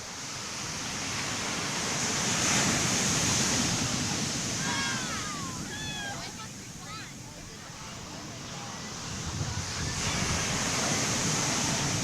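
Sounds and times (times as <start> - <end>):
wave breaking on beach: 0.0 - 12.0.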